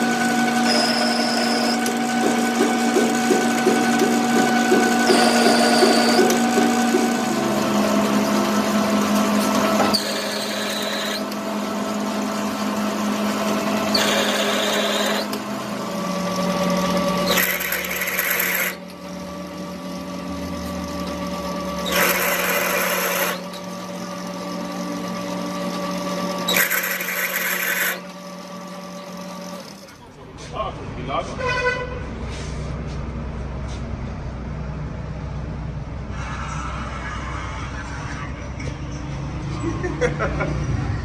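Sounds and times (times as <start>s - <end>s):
harsh metal grinding bursts: 0.0s - 11.4s, 13.5s - 30.0s
workshop machine motor running: 0.0s - 41.0s.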